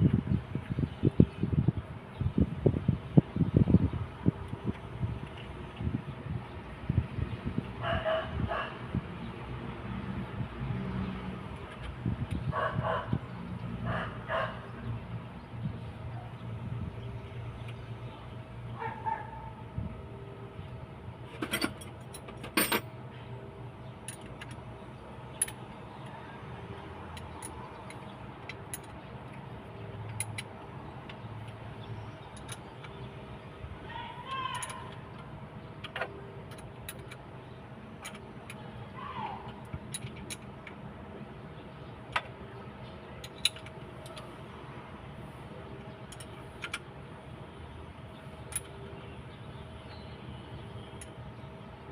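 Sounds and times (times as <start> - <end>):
metallic clinks of tools: 21.4 - 22.9.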